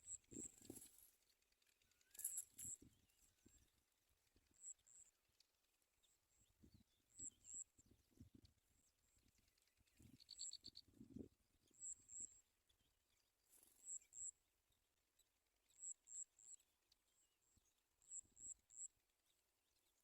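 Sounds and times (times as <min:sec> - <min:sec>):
rustles: 0:00.1 - 0:01.2
bird trill: 0:01.8 - 0:03.6, 0:10.1 - 0:10.8.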